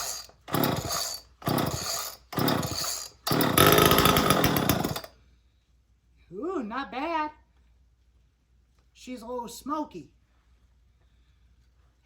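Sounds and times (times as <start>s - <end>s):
chainsaw engine running: 0.0s - 5.1s
chainsaw starter cord pulls: 0.0s - 5.1s.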